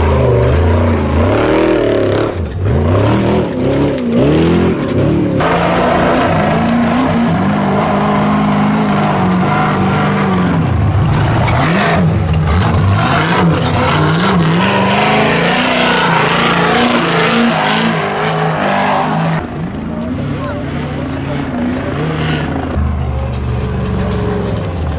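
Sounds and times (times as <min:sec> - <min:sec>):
race engine revving hard: 0:00.0 - 0:19.4.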